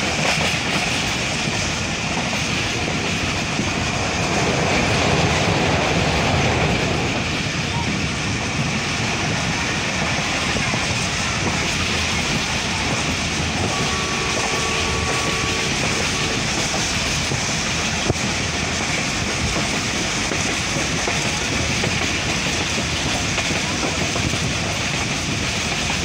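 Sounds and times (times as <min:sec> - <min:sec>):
wind rushing: 0:00.0 - 0:25.5
train wheels rumbling on rails: 0:00.0 - 0:26.0.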